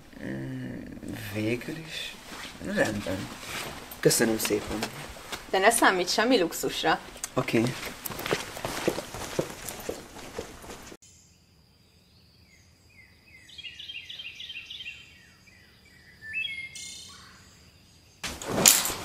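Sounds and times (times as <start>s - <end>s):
songbird downward-sliding chirps: 11.1s - 18.2s.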